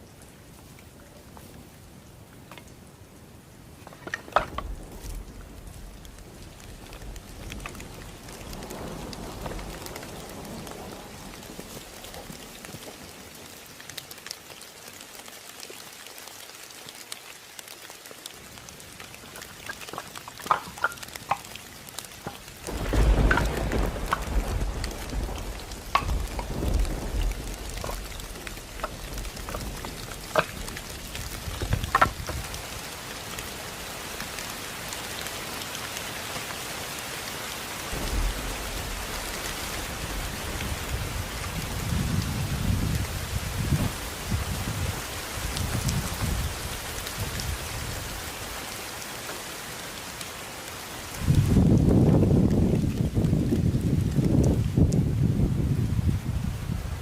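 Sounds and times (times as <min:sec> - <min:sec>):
heavy rain: 0:00.0 - 0:57.0
thunder rumbling: 0:04.5 - 0:13.0, 0:22.5 - 0:32.6, 0:37.9 - 0:48.1, 0:51.2 - 0:57.0.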